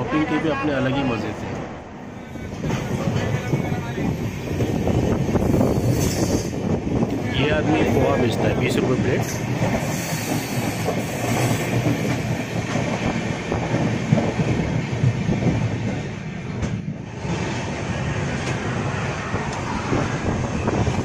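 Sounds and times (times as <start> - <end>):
train wheels rumbling on rails: 1.0 - 21.0.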